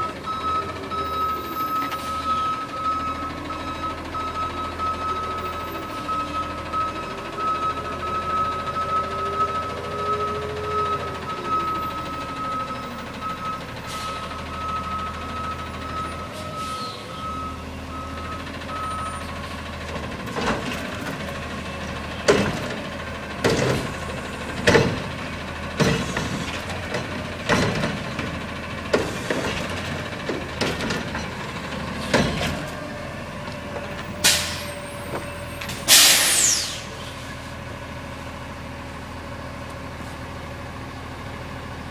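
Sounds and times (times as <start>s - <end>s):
truck reversing alarm beeping: 0.0s - 37.0s
truck engine running: 0.0s - 41.9s
sharp knocks and bangs: 22.2s - 22.8s, 24.6s - 25.1s
air brake hissing: 34.2s - 34.8s, 35.7s - 37.4s.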